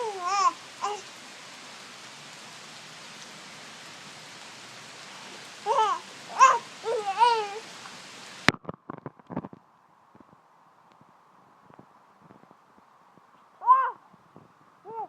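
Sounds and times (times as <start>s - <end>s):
small child sing-song vocalising: 0.0s - 1.1s, 5.7s - 7.7s
rain falling: 0.0s - 15.0s.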